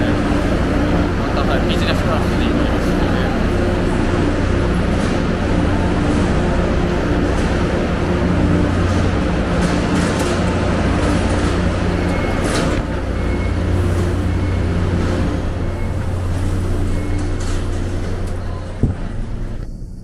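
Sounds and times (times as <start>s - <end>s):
train humming and rumbling: 0.0s - 20.0s.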